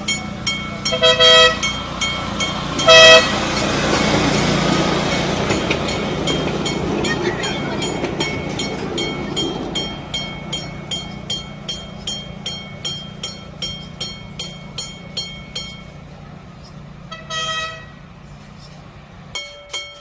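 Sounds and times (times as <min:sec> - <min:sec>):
electric train humming: 0:00.0 - 0:20.0
bell ringing: 0:05.0 - 0:16.0.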